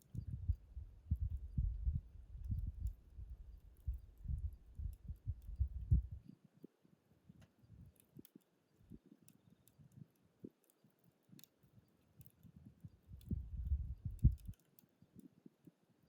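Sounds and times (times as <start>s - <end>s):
campfire crackling: 0.0s - 6.2s, 7.4s - 15.4s.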